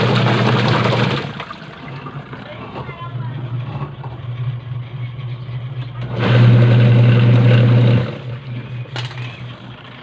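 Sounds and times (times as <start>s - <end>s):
washing machine motor humming: 0.0s - 10.0s.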